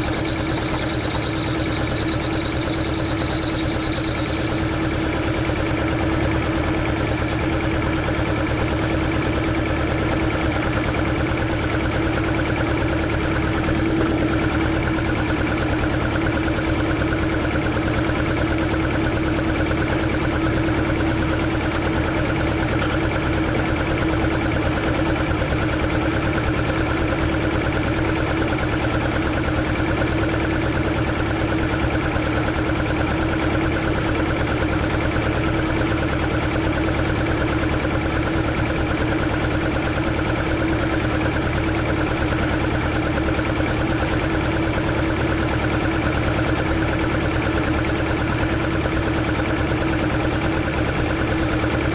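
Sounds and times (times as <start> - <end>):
car engine idling: 0.0 - 51.9.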